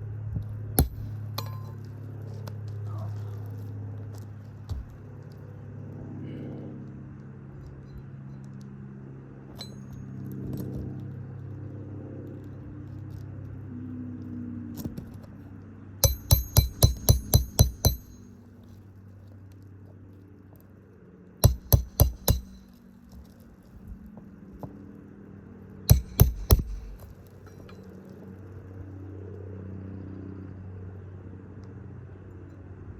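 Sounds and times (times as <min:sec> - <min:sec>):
low steady hum: 0:00.0 - 0:32.9
hammer striking metal: 0:00.8 - 0:01.8, 0:16.0 - 0:18.3, 0:21.4 - 0:22.7, 0:25.9 - 0:27.1.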